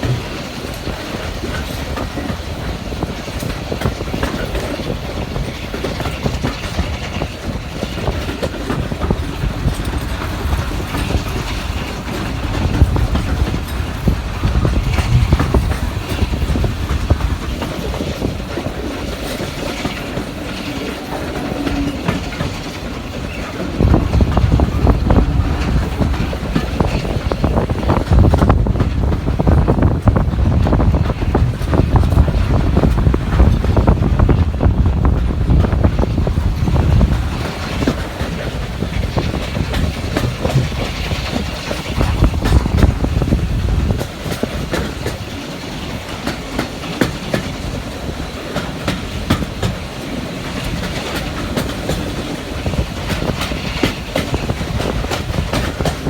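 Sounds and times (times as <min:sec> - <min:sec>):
train carriage rumble: 0:00.0 - 0:56.0
wheels clattering over rail joints: 0:00.0 - 0:56.0.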